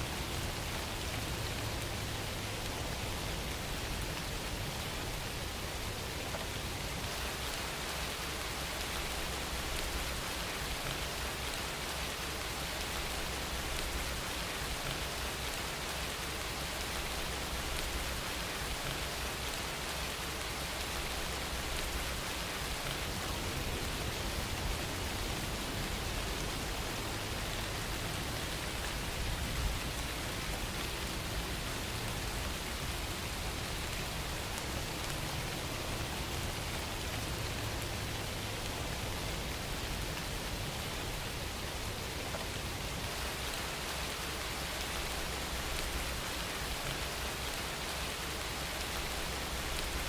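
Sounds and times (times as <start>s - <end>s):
steady rain hiss: 0.0s - 50.0s.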